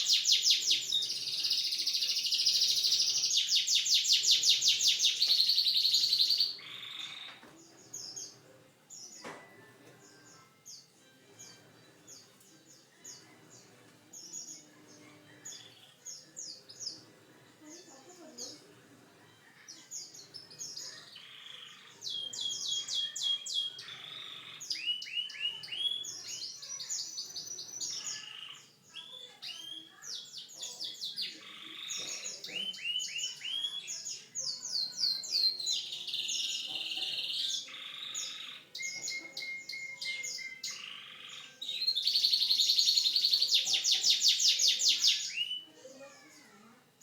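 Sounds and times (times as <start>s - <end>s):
canary singing trills: 0.0s - 8.4s, 19.5s - 45.8s.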